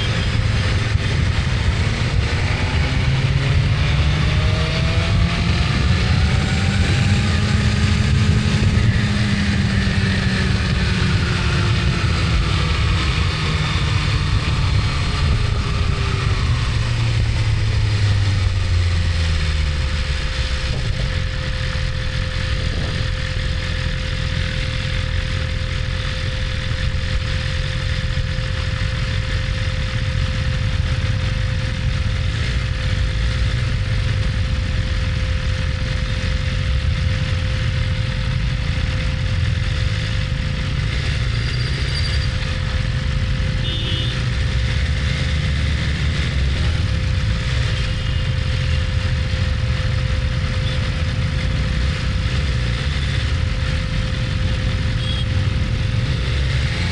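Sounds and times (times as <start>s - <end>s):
low rumble: 0.0s - 28.5s
motorcycle engine running steadily: 0.0s - 56.9s.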